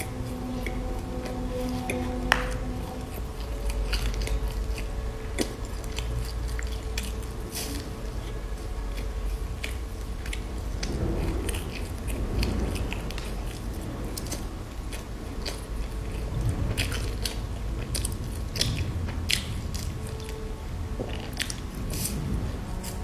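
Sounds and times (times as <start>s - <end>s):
crunchy granola bar chewing: 0.0s - 23.0s.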